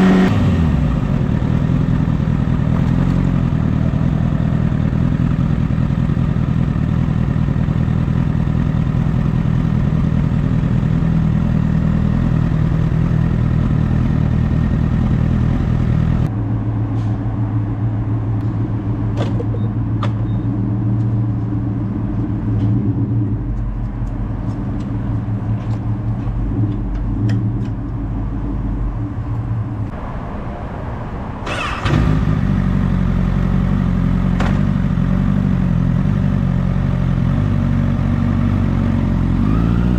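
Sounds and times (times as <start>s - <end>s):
motorcycle engine running: 0.0s - 16.3s, 31.5s - 39.9s.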